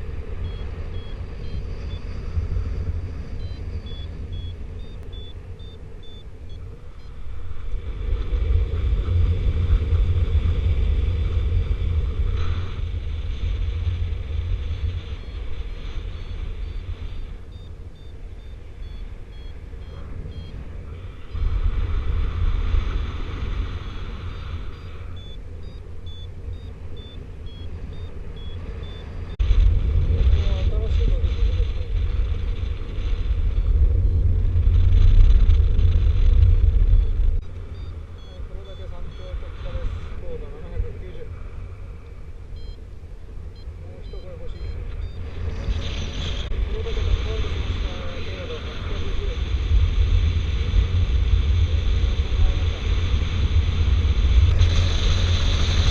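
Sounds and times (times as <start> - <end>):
variometer beeping: 0.0 - 7.8, 14.8 - 21.4, 23.9 - 29.4, 33.2 - 35.7, 36.4 - 41.2, 42.0 - 46.9
wind rumbling on microphone: 0.0 - 55.9.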